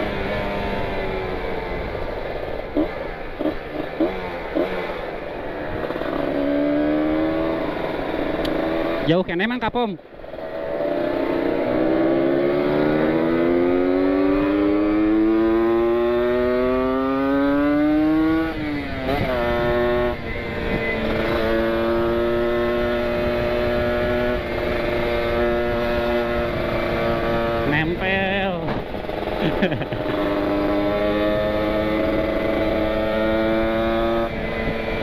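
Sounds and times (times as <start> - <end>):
motorcycle engine at full throttle: 0.0 - 35.0
wind noise: 12.3 - 35.0.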